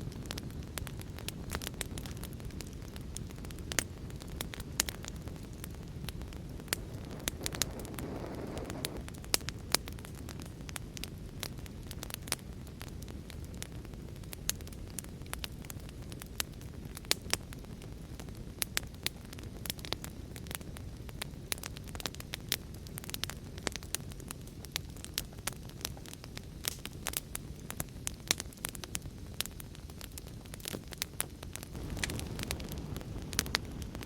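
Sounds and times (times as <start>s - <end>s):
sharp pops of fire: 0.0s - 34.0s
wood fire crackling: 0.0s - 34.0s
low fire rush: 0.2s - 9.6s, 31.7s - 34.0s.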